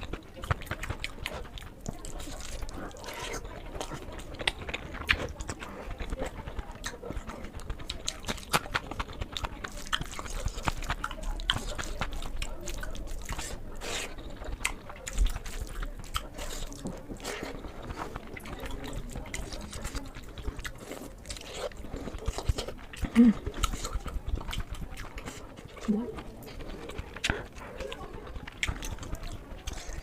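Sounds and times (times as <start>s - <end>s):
wet chewing and mouth smacks: 0.0s - 30.0s.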